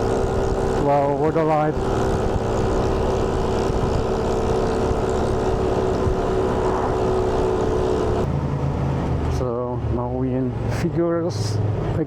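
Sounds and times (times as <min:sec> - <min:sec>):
motorbike engine running: 0:00.0 - 0:08.3
wind rushing over microphone: 0:00.0 - 0:08.3.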